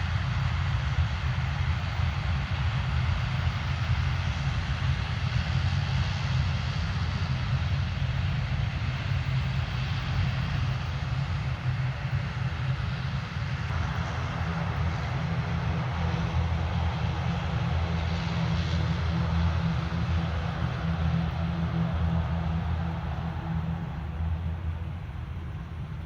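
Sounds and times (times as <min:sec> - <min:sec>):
airliner engines running: 0:00.0 - 0:26.0
faint steady tones: 0:05.4 - 0:26.0.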